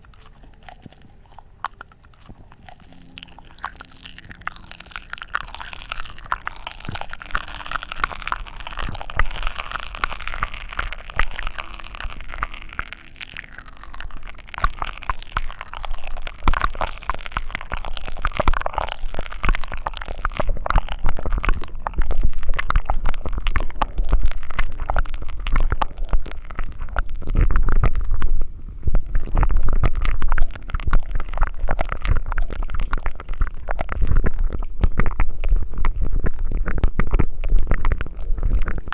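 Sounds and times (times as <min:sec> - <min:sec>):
gurgling: 0:00.0 - 0:38.9
wet mouth clicks: 0:00.0 - 0:38.9
heavy low rumbling: 0:02.3 - 0:14.3.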